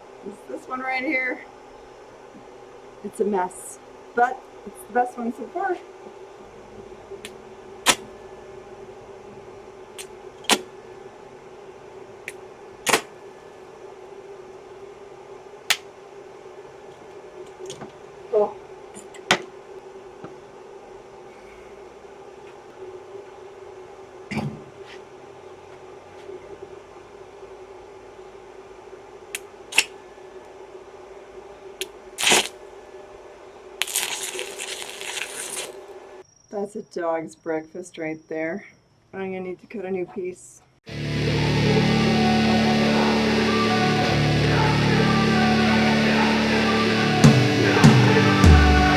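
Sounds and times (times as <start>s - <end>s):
steady electrical hum: 0.0s - 36.5s
arc welder humming: 7.2s - 8.5s, 12.2s - 13.6s.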